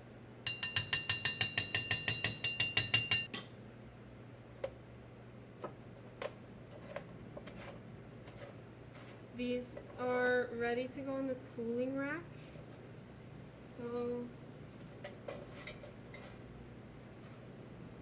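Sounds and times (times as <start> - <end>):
utensil clinking against bowl: 0.5 - 3.5.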